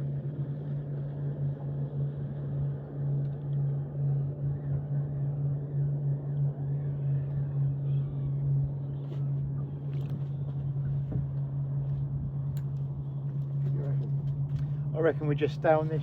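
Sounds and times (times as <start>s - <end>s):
boat engine humming: 0.0s - 16.0s
light clicks: 12.5s - 12.9s.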